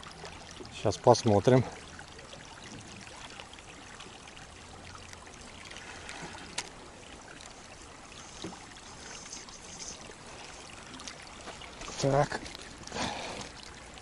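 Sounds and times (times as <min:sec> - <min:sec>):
water trickling: 0:00.0 - 0:14.0.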